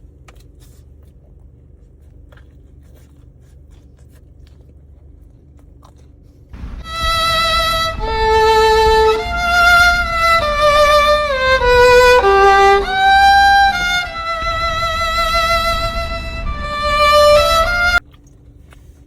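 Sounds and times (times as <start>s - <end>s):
solo violin melody: 6.6s - 18.0s.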